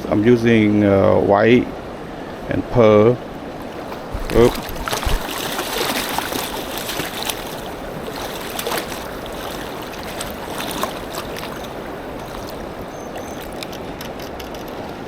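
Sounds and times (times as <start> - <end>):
river water rushing: 0.0 - 15.0
faint clicks: 5.9 - 15.0.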